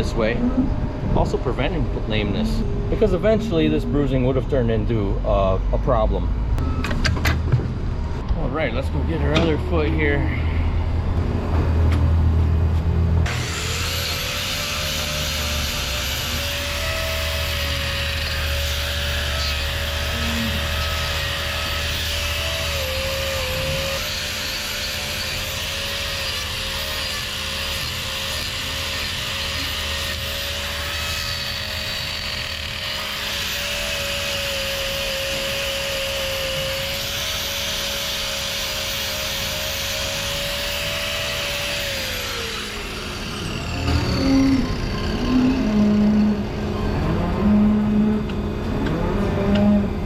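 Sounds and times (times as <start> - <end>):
angle grinder running: 13.2 - 48.2.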